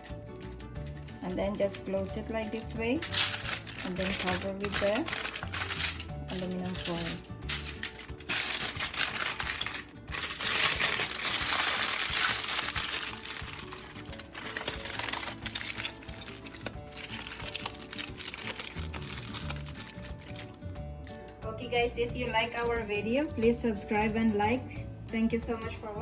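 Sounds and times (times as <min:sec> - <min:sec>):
aluminum foil crinkling: 0:00.0 - 0:20.6
background music: 0:00.0 - 0:26.0.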